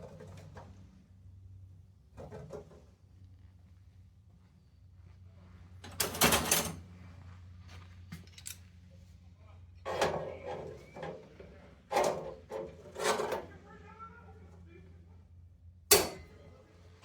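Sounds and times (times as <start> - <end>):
steel parts clanking and scraping: 11.9 - 13.5.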